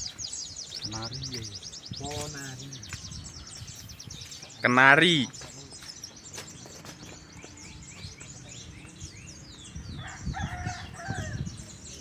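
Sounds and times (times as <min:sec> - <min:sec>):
caged songbirds chirping: 0:00.0 - 0:12.0
rooster crowing: 0:10.0 - 0:11.5.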